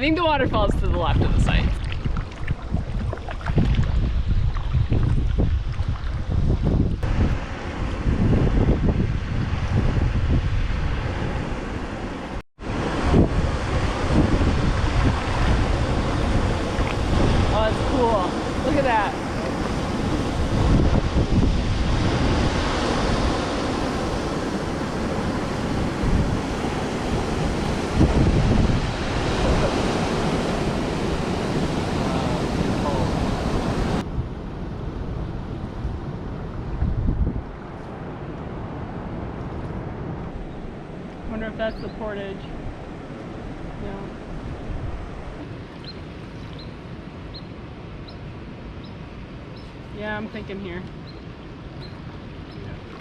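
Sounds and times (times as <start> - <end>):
rushing water: 0.0 - 10.0, 10.6 - 34.1, 37.4 - 53.0
wind buffeting microphone: 0.0 - 53.0
small bird chirping: 45.8 - 48.2, 51.0 - 52.7.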